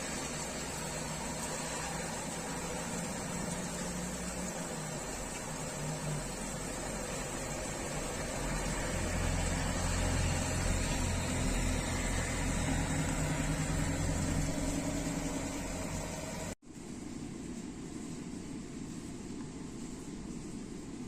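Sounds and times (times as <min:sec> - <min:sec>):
vehicle engine running: 0:00.0 - 0:16.6
rain hiss: 0:00.0 - 0:21.0.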